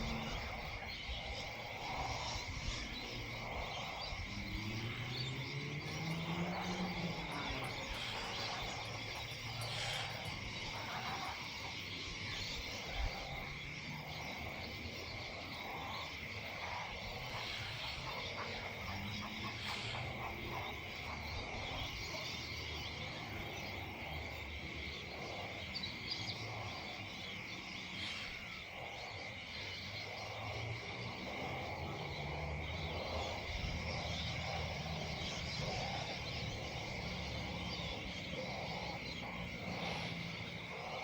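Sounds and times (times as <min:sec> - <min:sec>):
frogs and insects trilling: 0:00.0 - 0:41.0.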